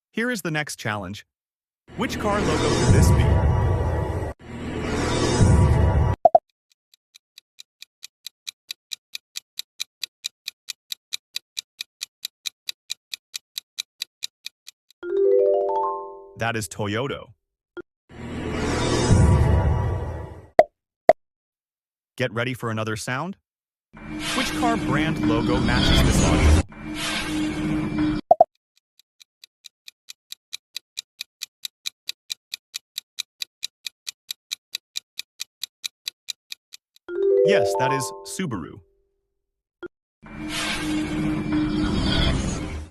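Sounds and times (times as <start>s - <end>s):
timer ticking: 6.3s - 15.1s, 28.3s - 38.7s
countdown timer ticking: 29.6s - 38.8s.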